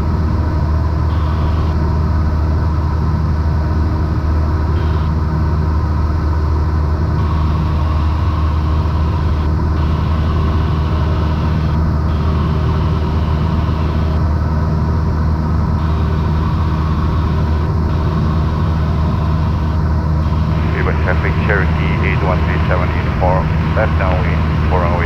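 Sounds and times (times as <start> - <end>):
propeller plane engine droning: 0.0 - 25.0.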